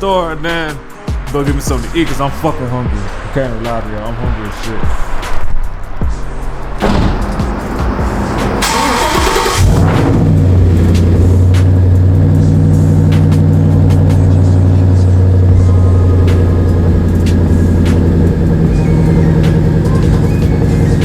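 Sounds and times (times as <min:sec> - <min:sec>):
car engine idling: 0:06.8 - 0:21.0.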